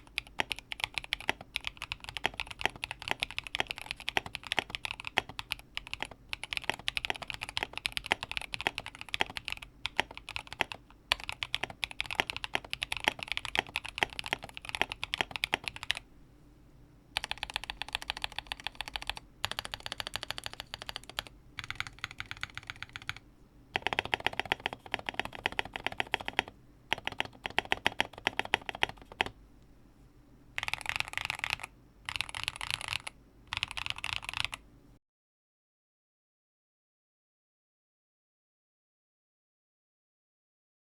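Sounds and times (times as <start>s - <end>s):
mechanical keyboard typing: 0.0s - 16.0s, 17.2s - 23.2s, 23.8s - 29.4s, 30.6s - 34.6s.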